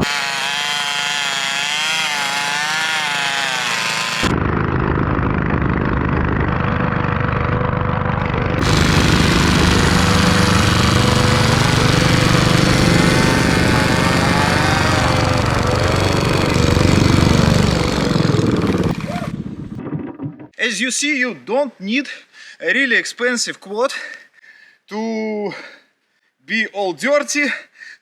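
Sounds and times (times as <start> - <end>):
small petrol engines running hard: 0.0 - 19.5.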